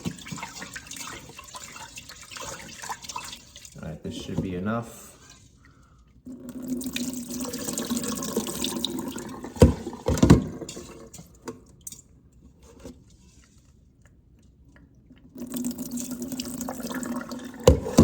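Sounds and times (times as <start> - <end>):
tap water running into metal pot: 0.0 - 4.6, 6.3 - 11.4, 15.4 - 18.0.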